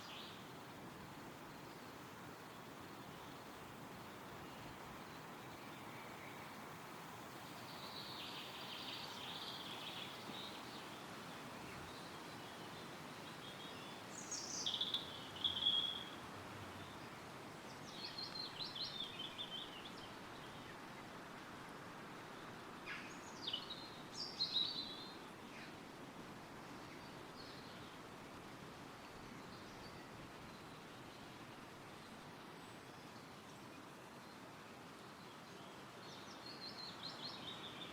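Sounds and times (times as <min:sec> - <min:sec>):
songbirds chirping: 0:00.0 - 0:37.9
wind rustling through trees: 0:00.0 - 0:37.9.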